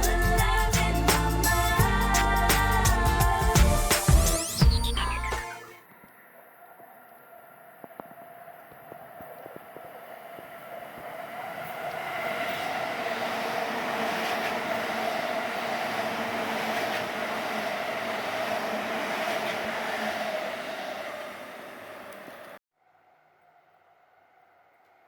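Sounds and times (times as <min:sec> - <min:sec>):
electric train passing: 0:09.6 - 0:22.6.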